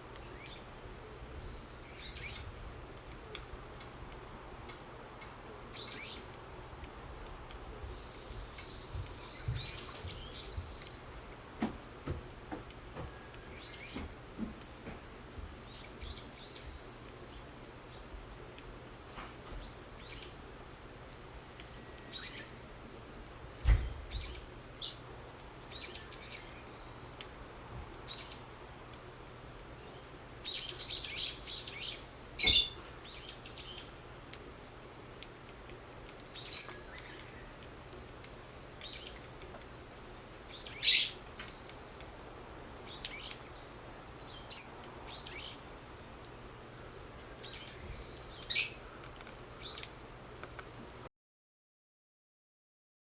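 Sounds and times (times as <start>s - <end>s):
birds chirping: 7.7s - 11.6s, 12.2s - 15.0s, 15.6s - 18.2s, 19.5s - 23.0s, 23.6s - 34.7s, 36.1s - 50.0s
low thump: 23.6s - 24.0s.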